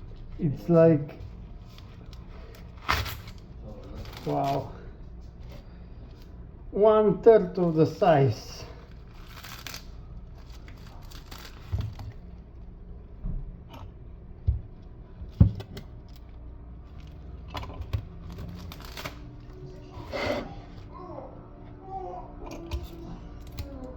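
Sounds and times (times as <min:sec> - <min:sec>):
coconut husk tearing: 0:08.8 - 0:12.2, 0:16.9 - 0:20.8.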